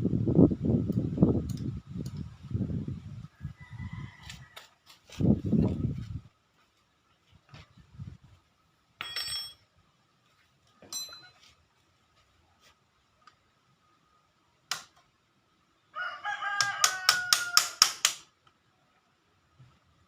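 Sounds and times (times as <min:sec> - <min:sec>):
rooster crowing: 0:03.3 - 0:04.8, 0:15.9 - 0:18.0.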